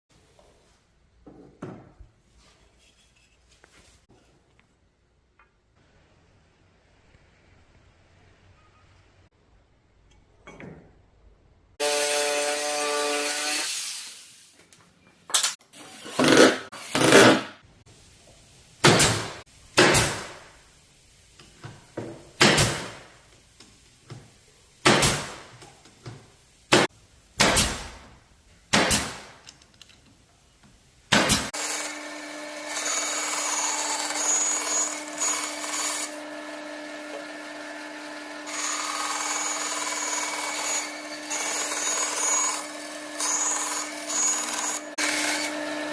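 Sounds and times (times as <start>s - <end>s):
power tool cutting wood: 11.8s - 14.2s, 31.5s - 45.9s.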